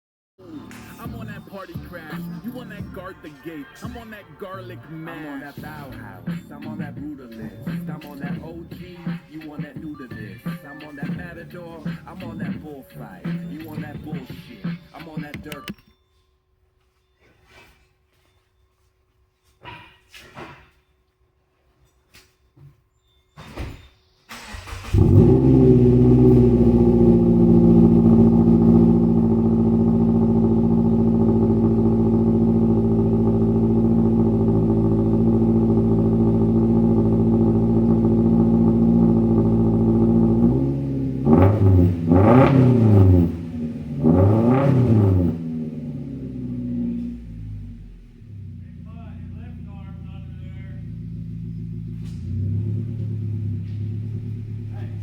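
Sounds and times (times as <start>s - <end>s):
car engine starting and idling: 4.4s - 15.8s, 24.3s - 55.0s
car engine revving: 10.3s - 15.7s, 24.3s - 55.0s.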